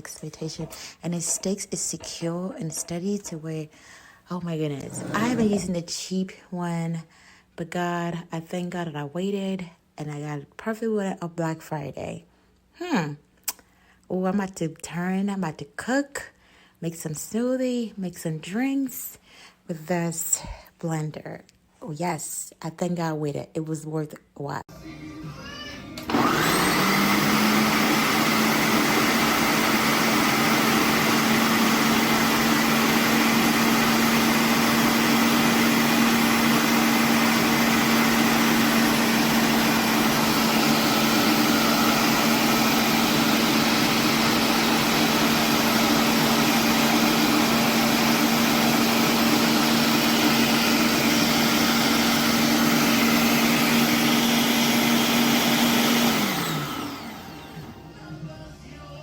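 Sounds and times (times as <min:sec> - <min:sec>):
blender motor whine: 0:04.8 - 0:05.8, 0:24.8 - 0:58.0.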